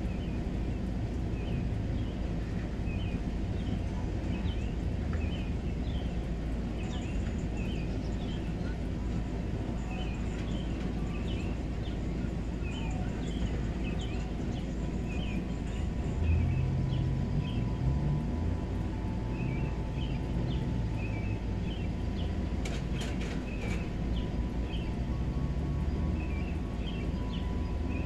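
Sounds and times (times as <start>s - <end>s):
low rumble: 13.2s - 28.0s
small birds chirping: 18.8s - 28.0s.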